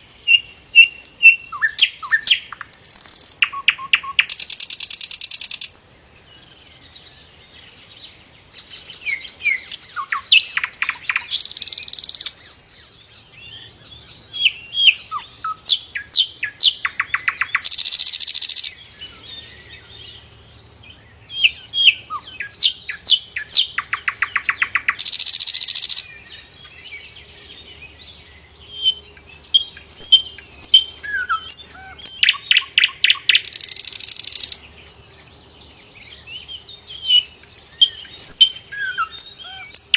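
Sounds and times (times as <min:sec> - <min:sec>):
bird whistling and chirping: 0:00.0 - 0:05.8, 0:08.7 - 0:12.6, 0:14.0 - 0:19.2, 0:21.3 - 0:26.2, 0:28.7 - 0:34.6, 0:35.2 - 0:39.9.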